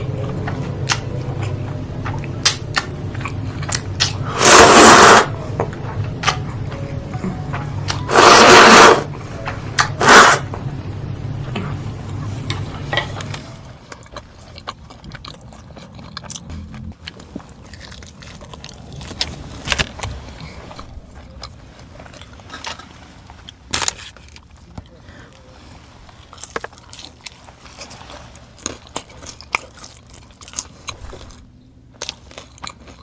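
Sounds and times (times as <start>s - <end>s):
chewing clicks and mouth smacks: 13.2s - 23.6s, 26.3s - 33.0s
loud eating crunches: 13.6s - 33.0s.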